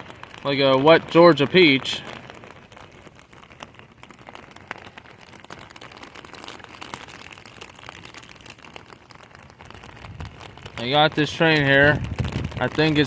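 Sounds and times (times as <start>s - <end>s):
raindrops tapping near microphone: 0.0s - 13.0s
heavy rain falling: 9.8s - 13.0s.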